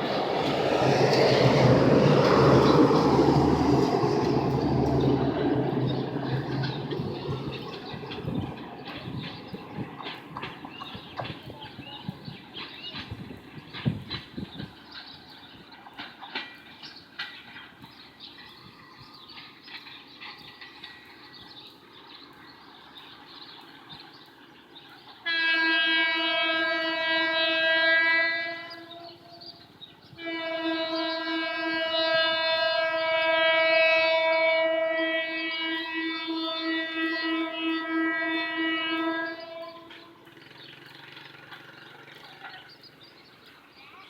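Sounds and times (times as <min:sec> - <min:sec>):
locomotive air horn blasts: 0:25.2 - 0:40.3.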